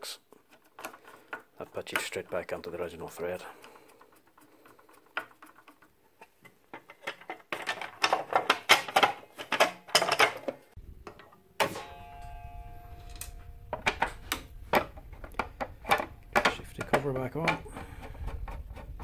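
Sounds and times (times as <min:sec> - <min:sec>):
tools clicking and clattering: 0:00.5 - 0:12.4, 0:13.0 - 0:19.0.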